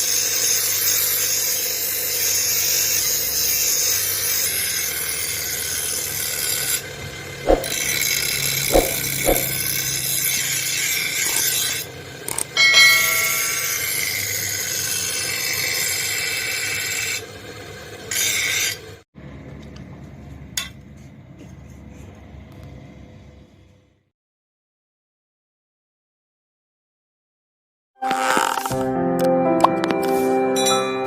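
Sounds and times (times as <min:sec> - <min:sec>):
sharp knocks: 0:07.5 - 0:09.7
abrasive rasping on metal: 0:07.5 - 0:11.9
brief metallic ringing: 0:12.6 - 0:14.1.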